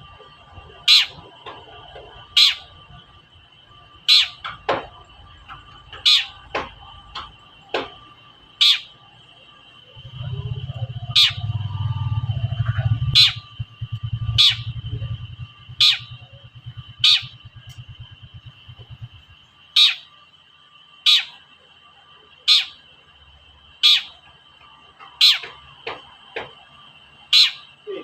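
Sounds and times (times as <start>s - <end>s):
low fluttering rumble: 9.8s - 19.7s
bird short sharp calls: 10.8s - 11.9s, 14.1s - 14.9s, 15.7s - 17.5s.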